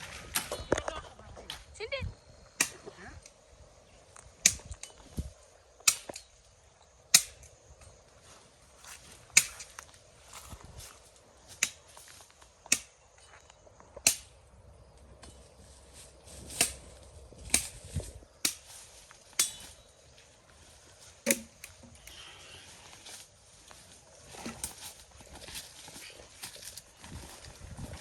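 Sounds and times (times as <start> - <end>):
machete chopping: 5.8 - 6.3, 7.2 - 7.4, 12.7 - 12.9, 14.0 - 14.3, 18.4 - 18.7, 19.4 - 19.7, 21.2 - 21.7.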